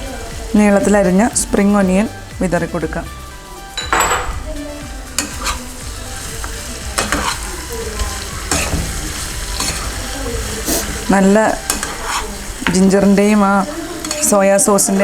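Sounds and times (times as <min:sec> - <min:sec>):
chicken sizzling in a pan: 0:00.0 - 0:03.4, 0:04.3 - 0:15.0
spatula scraping a pan: 0:05.2 - 0:14.4.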